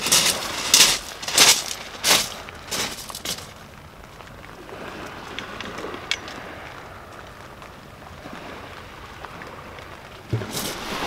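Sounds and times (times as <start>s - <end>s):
light rain hissing: 0.0s - 11.0s
fishing rod clicks and knocks: 5.3s - 6.4s.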